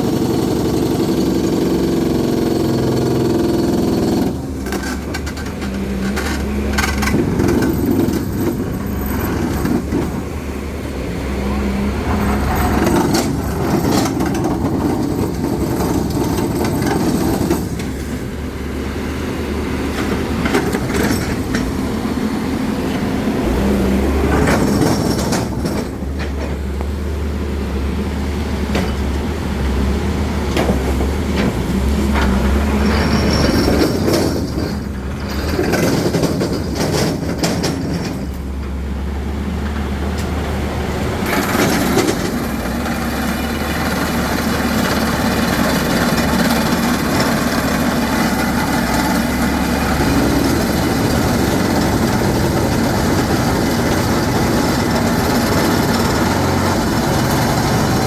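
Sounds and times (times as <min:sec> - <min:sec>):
engine low rumble: 0:00.0 - 0:58.0
metallic clattering and knocking: 0:30.6 - 0:38.7.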